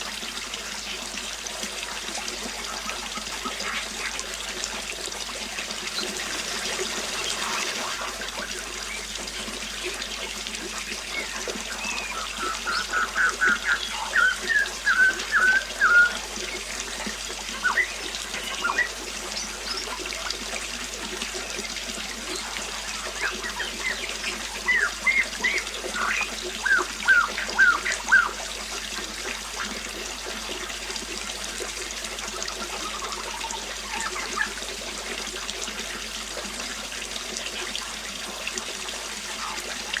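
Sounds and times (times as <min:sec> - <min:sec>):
water trickling: 0:00.0 - 0:40.0
bird chirping: 0:11.0 - 0:16.8, 0:17.5 - 0:20.0, 0:22.3 - 0:28.4.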